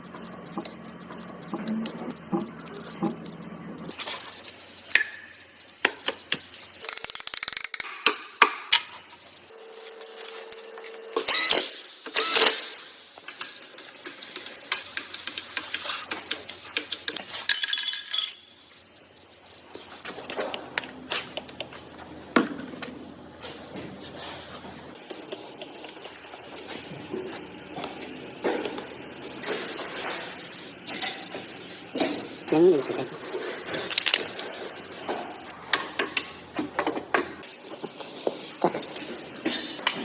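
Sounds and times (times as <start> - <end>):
high hissing spray: 3.9 - 6.9, 8.7 - 9.5, 12.6 - 17.6, 18.4 - 20.0, 29.4 - 35.2
metal parts clicking and knocking: 5.9 - 8.9, 33.7 - 34.4, 38.6 - 40.0.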